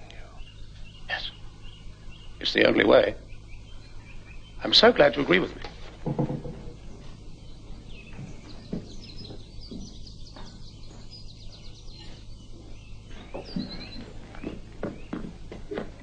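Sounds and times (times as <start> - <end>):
small birds chirping: 0.0 - 16.0
steady low hum: 0.0 - 16.0
faint soft knocks: 5.6 - 7.2.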